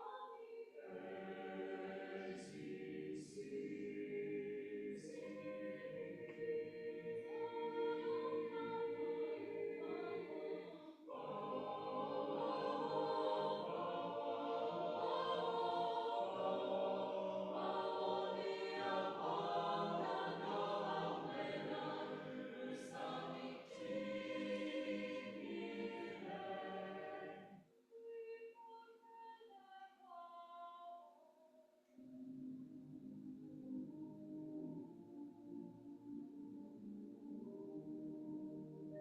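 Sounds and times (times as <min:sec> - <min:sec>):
choir singing: 0:00.0 - 0:27.6.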